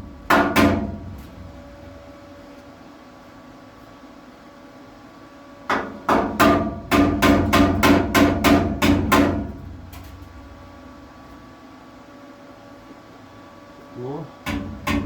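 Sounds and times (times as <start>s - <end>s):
hammer striking sheet metal: 0.3s - 0.9s, 5.7s - 9.6s, 14.5s - 15.0s.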